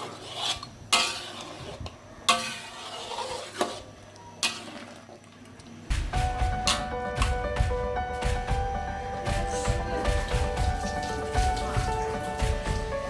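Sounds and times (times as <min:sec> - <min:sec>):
utensil scraping a pot: 0:00.0 - 0:05.2
music: 0:05.9 - 0:13.0.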